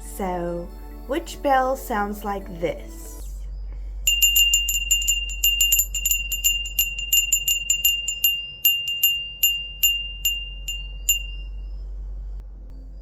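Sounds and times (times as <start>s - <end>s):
hand bell ringing: 4.1s - 11.7s.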